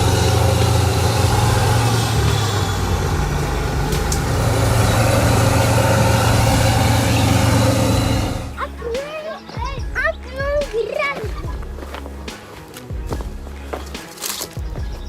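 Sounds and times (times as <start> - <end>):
heavy vehicle engine running: 0.0 - 8.7.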